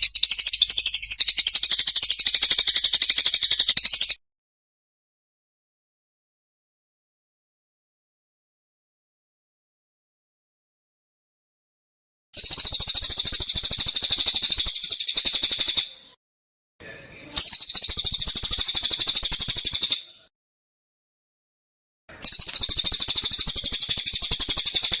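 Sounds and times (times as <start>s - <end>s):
songbird trilling: 0.0s - 4.2s, 12.4s - 16.1s, 17.4s - 20.2s, 22.2s - 25.0s.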